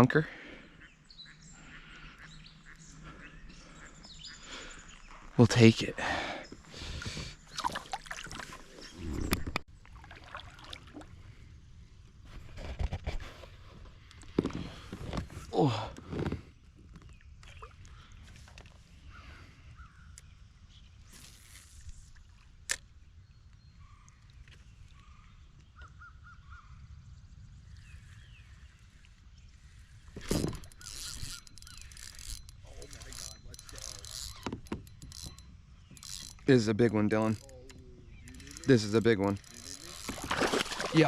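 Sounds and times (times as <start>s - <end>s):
light water sounds: 6.6s - 11.5s, 27.6s - 41.0s
knocks and clicks on a kayak: 30.2s - 38.6s.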